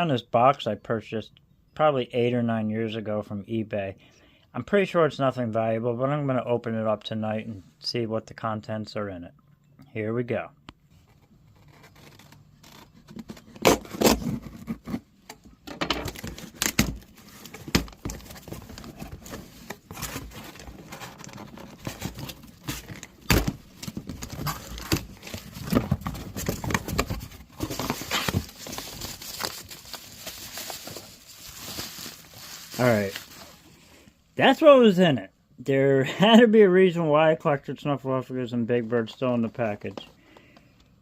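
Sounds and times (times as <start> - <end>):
cardboard box being unpacked: 11.0 - 15.1, 16.0 - 33.6.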